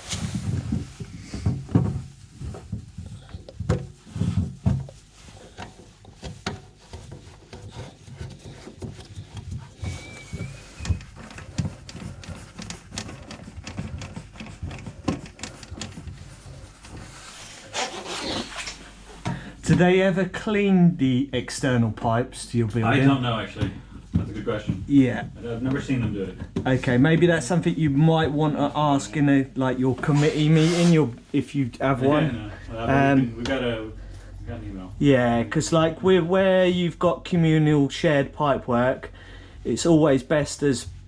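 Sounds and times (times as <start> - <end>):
thumps: 0.0 - 19.9
pipe fittings clicking and knocking: 0.1 - 17.2.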